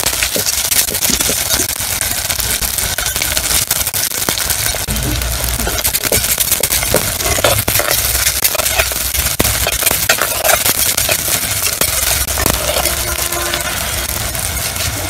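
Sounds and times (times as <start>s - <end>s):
onions sizzling in oil: 0.0s - 15.0s
spoon clinking and scraping pot: 5.6s - 13.2s.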